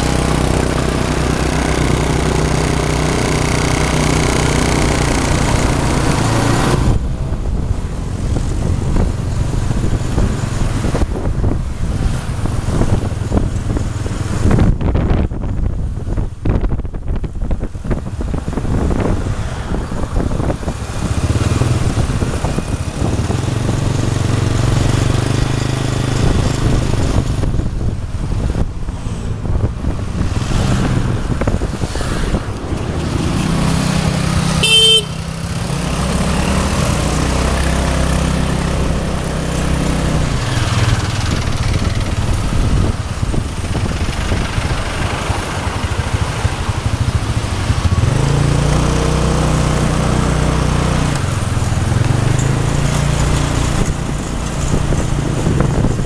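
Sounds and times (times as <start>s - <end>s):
motorbike engine running: 33.0s - 37.7s, 38.6s - 50.8s
vehicle horn beep: 34.6s - 35.2s.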